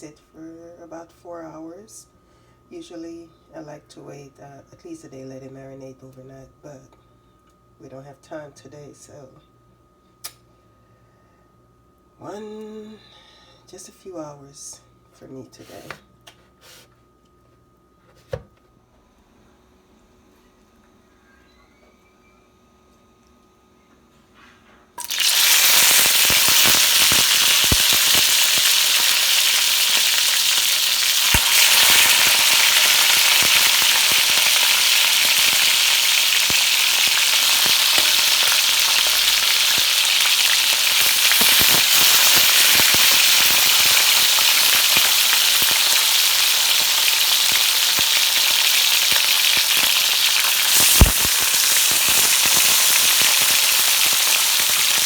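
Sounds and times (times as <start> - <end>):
chicken sizzling in hot oil: 25.0 - 55.0.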